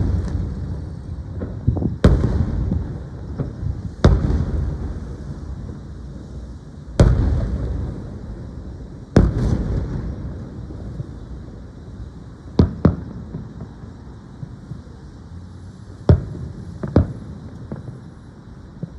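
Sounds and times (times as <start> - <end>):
firework booms with echo: 0.0 - 6.2, 6.9 - 11.8, 12.5 - 13.8, 16.1 - 18.0
faint firework pops: 1.3 - 5.1, 7.0 - 8.0, 9.1 - 10.3, 12.6 - 13.8, 16.1 - 18.0.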